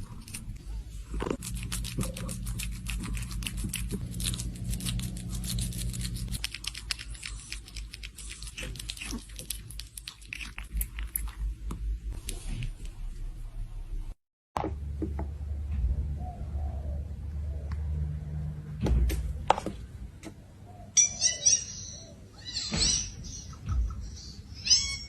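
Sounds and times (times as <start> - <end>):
crunchy chewing: 0.0 - 11.9
low steady hum: 0.0 - 21.0.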